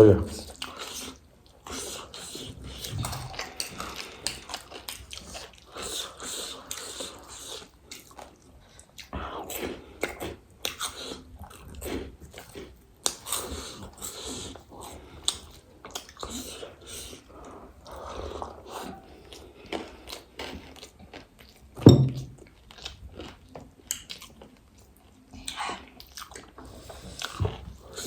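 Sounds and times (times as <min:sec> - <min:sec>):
chewing and crunching snacks: 0:00.4 - 0:21.8, 0:22.4 - 0:28.0.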